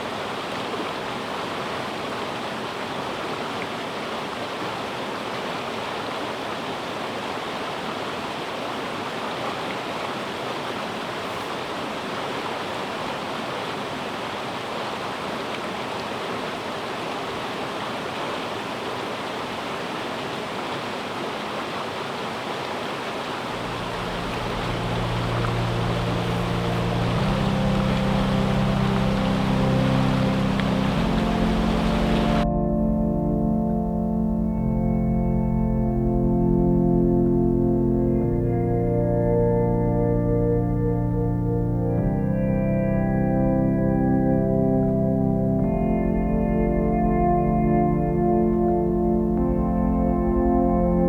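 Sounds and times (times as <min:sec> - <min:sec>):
river water rushing: 0:00.0 - 0:32.5
low steady hum: 0:23.5 - 0:51.0.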